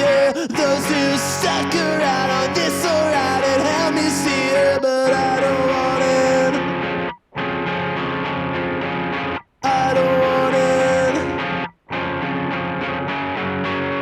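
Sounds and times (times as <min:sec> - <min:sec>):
punk rock band with vocals: 0:00.0 - 0:07.0, 0:09.6 - 0:11.6.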